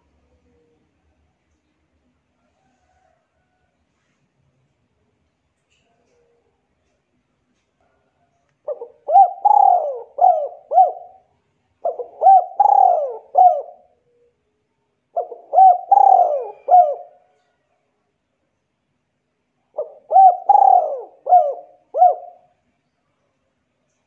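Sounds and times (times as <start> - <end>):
bird cooing: 8.6 - 14.5, 15.1 - 17.6, 19.7 - 22.6.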